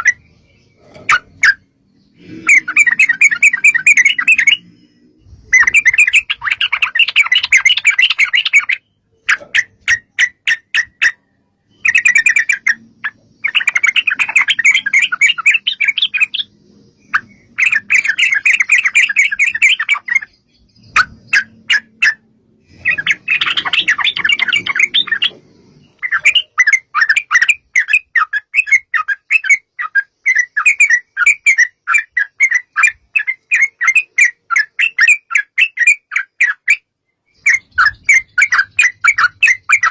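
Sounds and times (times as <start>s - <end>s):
bird singing bubbling chatter: 0.0s - 39.9s.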